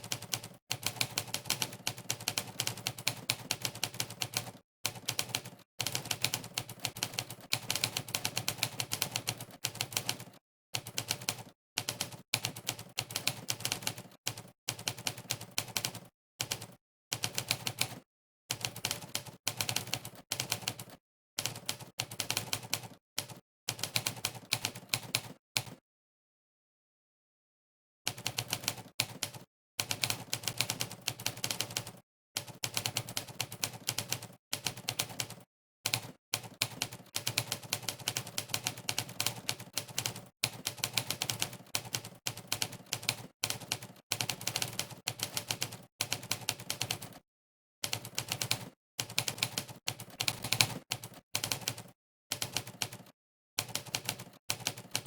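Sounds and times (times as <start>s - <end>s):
typewriter keystroke clacks: 28.1s - 47.2s, 47.8s - 55.0s.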